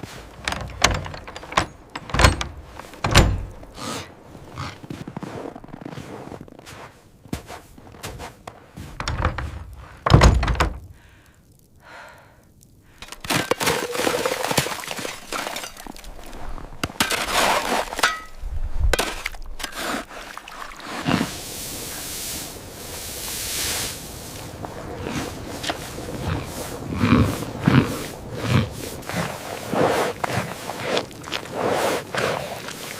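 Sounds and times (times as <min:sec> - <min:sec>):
cracking and knocking: 0:00.2 - 0:03.7, 0:08.9 - 0:11.0.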